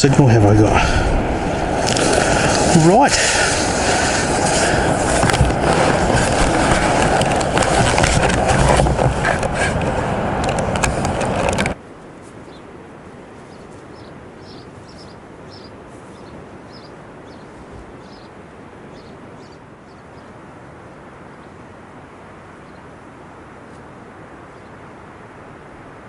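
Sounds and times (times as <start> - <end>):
loud rushing noise: 0.0 - 11.8
faint bird chirps: 13.5 - 20.4.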